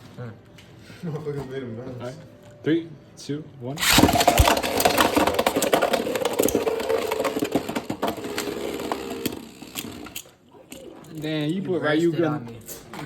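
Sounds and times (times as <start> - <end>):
spinning tops whirring: 3.8 - 10.2
spinning tops clacking together: 3.8 - 10.3.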